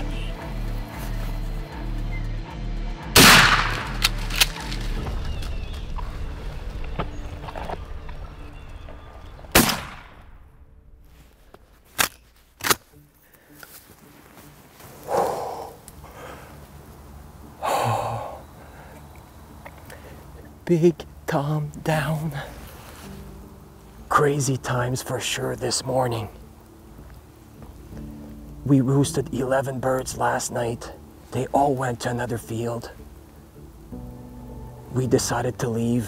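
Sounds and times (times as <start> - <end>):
music with low beat: 0.0 - 8.0
loud shotgun shot with echo: 3.2 - 4.0, 9.5 - 10.2.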